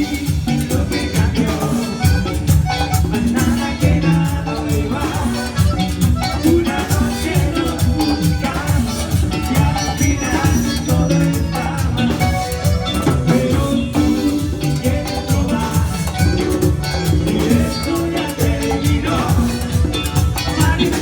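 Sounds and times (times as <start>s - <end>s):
band playing latin dance music: 0.0s - 21.0s.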